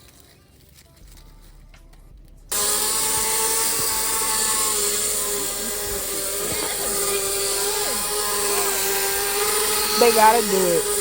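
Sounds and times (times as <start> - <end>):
small engine running: 2.5 - 11.0.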